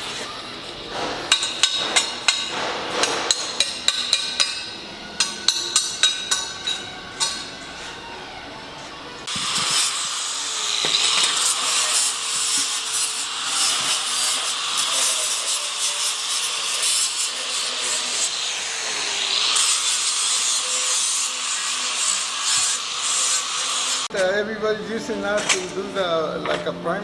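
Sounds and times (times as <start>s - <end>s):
power tool grinding metal: 8.9s - 27.0s.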